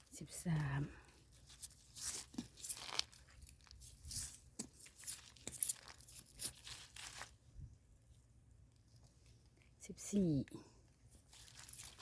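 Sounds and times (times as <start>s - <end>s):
dry leaves rustling and crunching: 0.0s - 7.4s, 11.2s - 12.0s.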